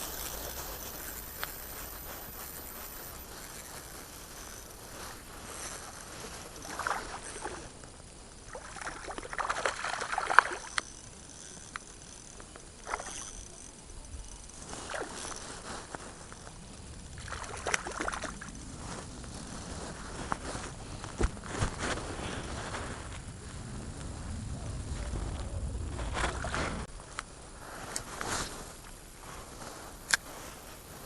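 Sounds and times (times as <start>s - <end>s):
water splashing and sloshing: 8.5s - 10.6s, 17.2s - 18.4s.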